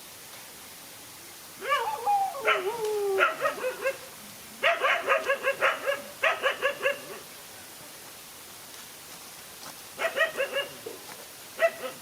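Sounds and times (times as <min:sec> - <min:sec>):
dogs barking: 0:01.6 - 0:04.0, 0:04.6 - 0:07.2, 0:10.0 - 0:11.0, 0:11.6 - 0:12.0
dogs crying: 0:01.6 - 0:04.0.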